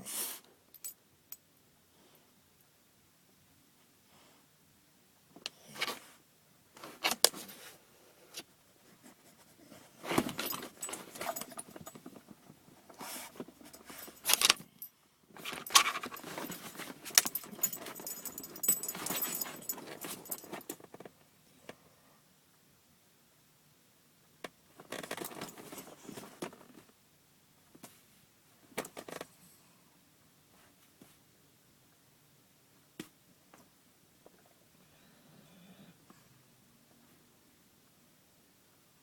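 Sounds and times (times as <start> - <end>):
rustling: 5.6 - 21.1, 24.8 - 26.9
dog collar tags jingling: 10.1 - 12.2, 13.0 - 20.8.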